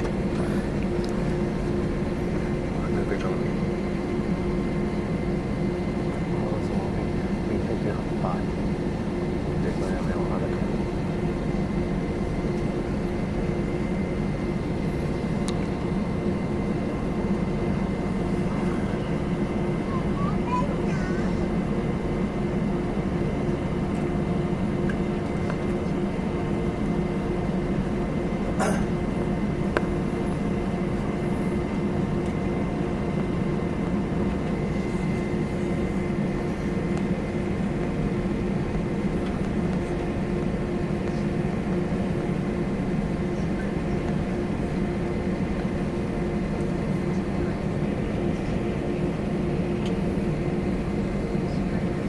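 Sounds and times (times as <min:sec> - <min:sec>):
air and ventilation rush: 0:00.0 - 0:04.2
jet engine cabin drone: 0:00.0 - 0:52.0.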